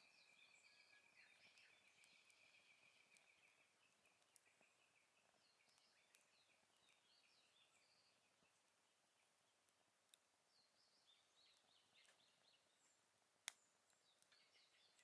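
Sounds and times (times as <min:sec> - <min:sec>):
higher bird chirps: 0:00.0 - 0:08.3
campfire pops: 0:00.9 - 0:07.1, 0:13.4 - 0:15.0.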